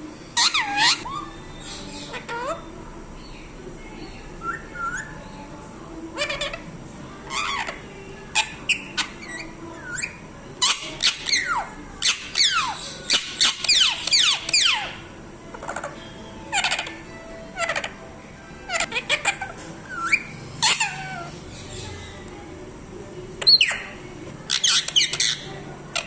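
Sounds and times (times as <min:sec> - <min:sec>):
parrot calling: 0:00.3 - 0:03.4, 0:06.1 - 0:18.0, 0:18.6 - 0:22.2, 0:23.4 - 0:26.0.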